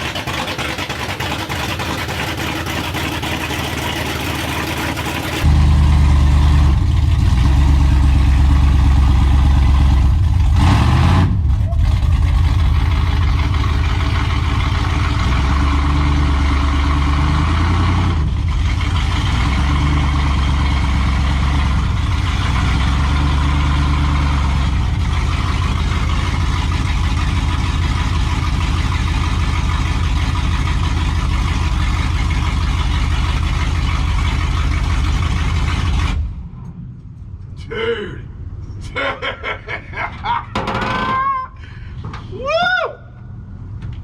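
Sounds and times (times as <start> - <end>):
truck engine running loud: 0.0 - 36.8.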